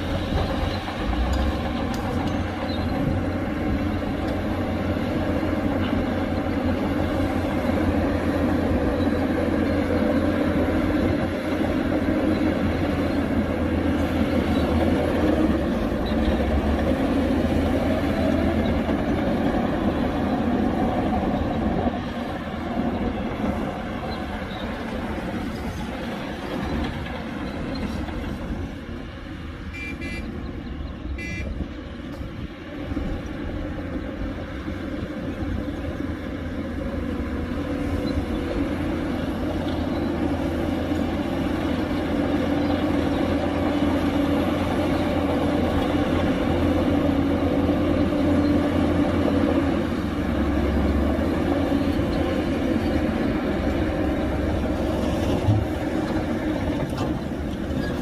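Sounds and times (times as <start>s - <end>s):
heavy machinery diesel engines: 0.0s - 58.0s
short horn toots: 29.7s - 30.3s, 31.2s - 31.6s.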